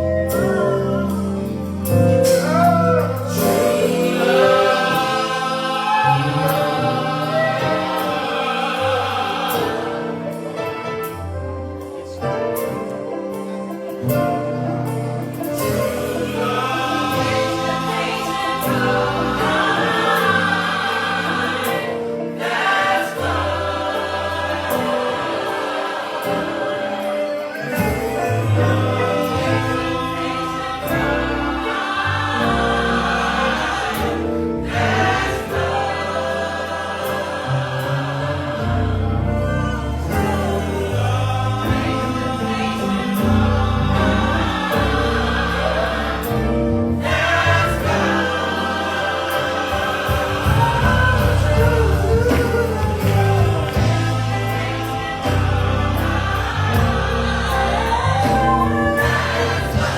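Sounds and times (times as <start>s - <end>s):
band accompaniment: 0.0s - 59.9s
choir singing in harmony: 0.0s - 59.9s
bass line: 27.8s - 59.9s.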